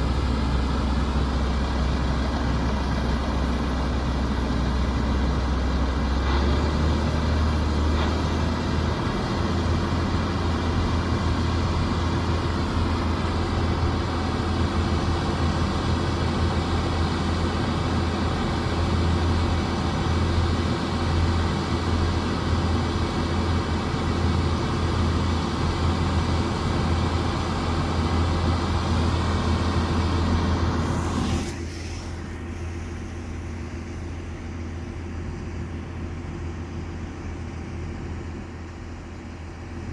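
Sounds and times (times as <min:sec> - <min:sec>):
diesel engine hum: 0:00.0 - 0:39.9
high mechanical whine: 0:29.0 - 0:36.8.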